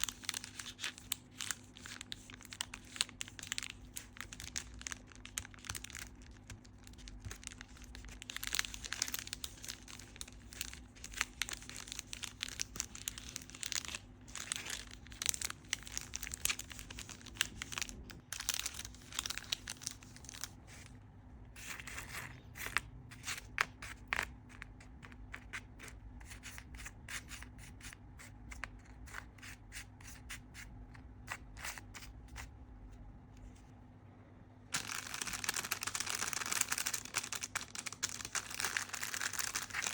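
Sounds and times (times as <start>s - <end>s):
crinkling scratching and tapping: 34.7s - 39.9s.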